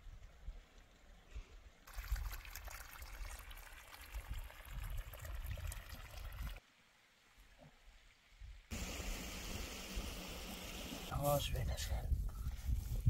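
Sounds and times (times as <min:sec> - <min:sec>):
mountain water splashing: 0:01.8 - 0:06.6.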